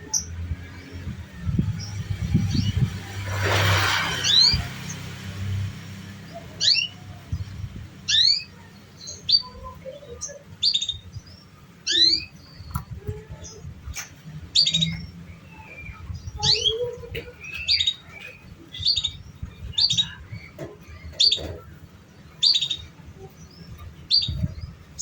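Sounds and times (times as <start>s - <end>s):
canary chirping: 4.2s - 12.8s, 22.2s - 25.0s.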